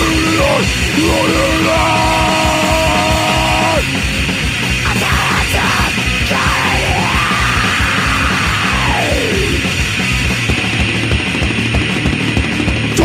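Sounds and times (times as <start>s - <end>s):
person yelling vocals: 0.0s - 3.8s, 4.9s - 9.6s
sliding long tone: 0.0s - 3.8s
distorted guitars: 0.0s - 13.0s
pounding drums: 0.0s - 13.0s.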